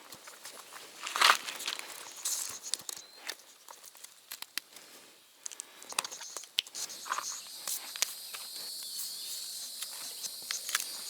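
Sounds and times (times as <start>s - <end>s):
insects chirring: 5.2s - 11.0s.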